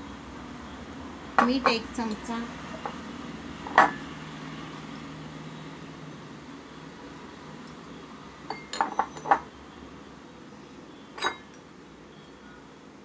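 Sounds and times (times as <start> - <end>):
metal spoon clinking against bowl: 7.7 - 9.4, 11.2 - 11.6.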